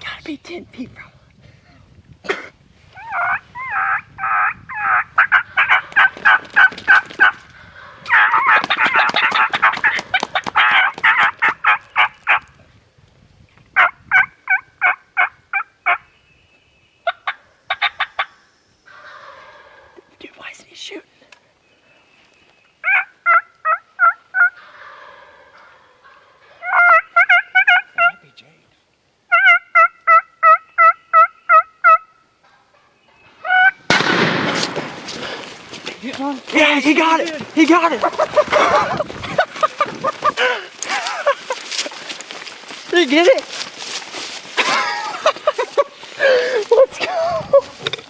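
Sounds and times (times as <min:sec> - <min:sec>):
turkey yelps: 0:03.0 - 0:12.4, 0:13.8 - 0:16.0, 0:17.0 - 0:20.0, 0:22.8 - 0:28.2, 0:29.3 - 0:33.8
turkey gobbling: 0:03.0 - 0:12.5, 0:13.8 - 0:16.0, 0:17.0 - 0:20.1, 0:22.8 - 0:28.3, 0:29.3 - 0:35.6, 0:36.7 - 0:42.2
shotgun shot: 0:33.9 - 0:35.4.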